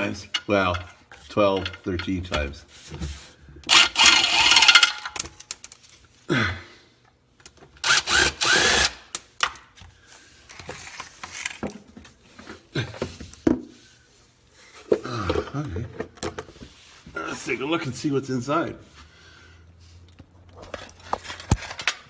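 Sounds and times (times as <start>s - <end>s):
power driver whirring: 3.7s - 4.8s, 7.8s - 9.1s.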